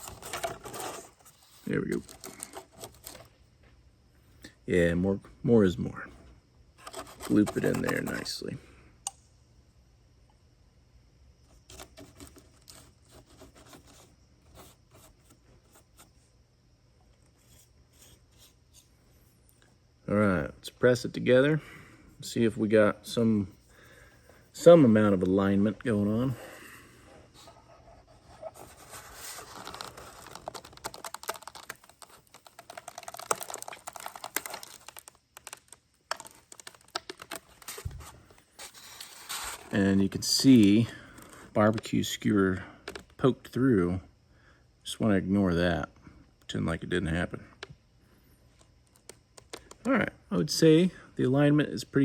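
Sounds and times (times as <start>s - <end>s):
foam parts clicking and crackling: 0.0s - 3.4s, 6.8s - 8.3s, 11.5s - 16.1s, 27.3s - 41.9s, 48.5s - 50.0s.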